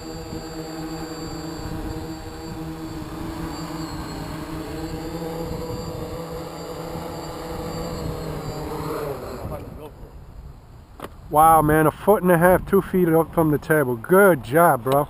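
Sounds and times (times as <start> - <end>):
drone propellers humming: 0.0 - 10.9
wind rumbling on microphone: 0.0 - 14.0.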